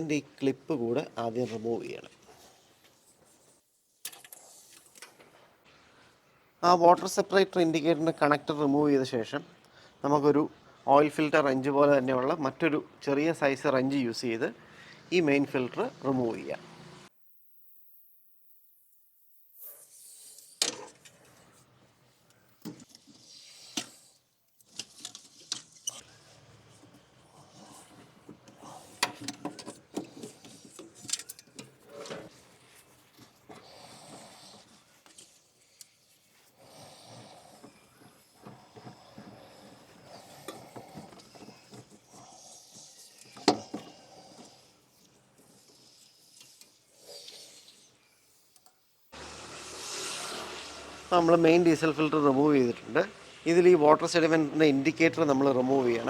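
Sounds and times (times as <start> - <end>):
tools scraping: 22.6 - 36.6.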